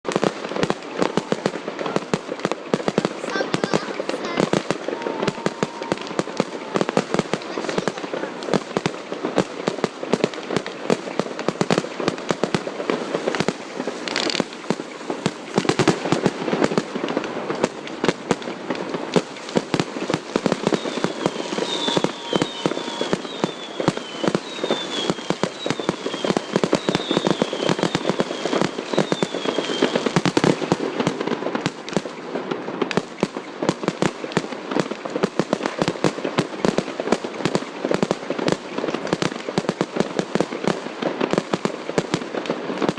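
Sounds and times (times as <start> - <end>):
fireworks bangs and crackling: 0.0 - 42.9
short falling firework whistles: 4.1 - 8.1, 20.5 - 30.6.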